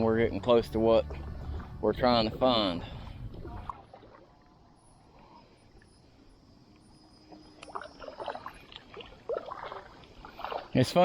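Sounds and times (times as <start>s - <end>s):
paddle splashing in water: 0.4s - 4.6s, 7.2s - 11.0s.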